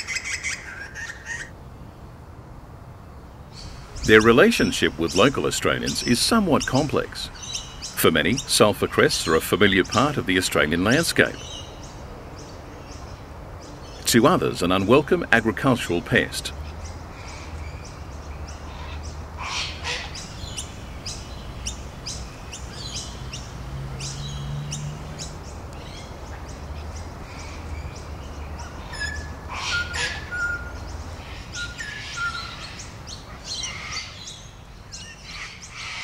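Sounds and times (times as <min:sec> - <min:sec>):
birds chirping: 0:00.0 - 0:02.0, 0:03.2 - 0:36.0
low steady rumble: 0:15.2 - 0:29.5.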